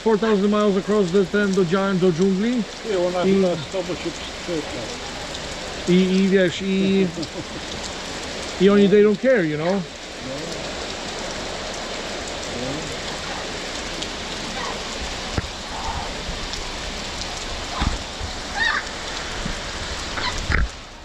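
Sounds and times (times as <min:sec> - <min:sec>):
voices: 0:00.0 - 0:19.2
heavy rain pouring: 0:00.0 - 0:21.0
low thuds: 0:15.2 - 0:18.5.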